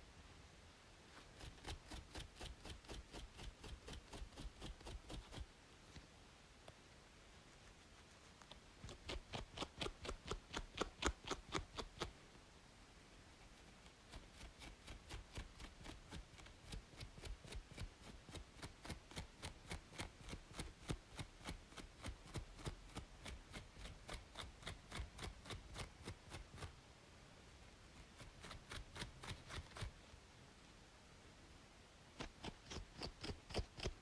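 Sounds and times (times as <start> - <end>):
faint white noise hiss: 0.0 - 34.0
fingers scratching scalp: 1.1 - 5.5, 7.5 - 12.1, 14.1 - 26.7, 28.0 - 30.0, 32.2 - 34.0.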